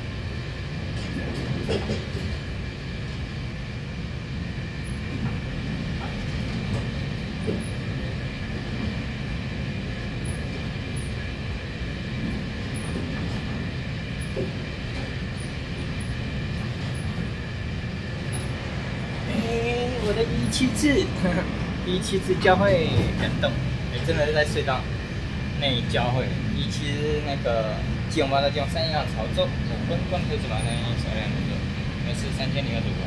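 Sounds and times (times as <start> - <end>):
oncoming train passing: 0.0 - 33.0
train running rumble: 0.0 - 33.0.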